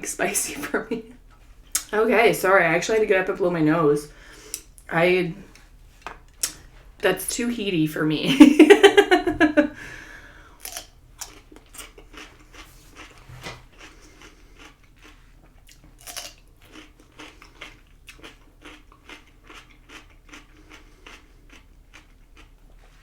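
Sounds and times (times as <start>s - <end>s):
person chewing crunchy food: 10.5s - 23.0s.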